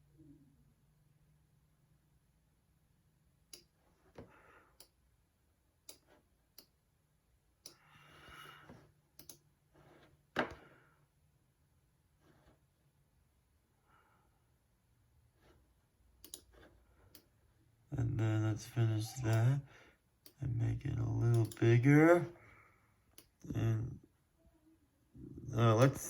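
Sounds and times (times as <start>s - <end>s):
faint low hum: 0.0s - 26.0s
computer mouse clicks: 3.5s - 3.8s, 5.8s - 6.8s, 9.2s - 9.5s, 16.2s - 17.3s, 21.3s - 21.6s.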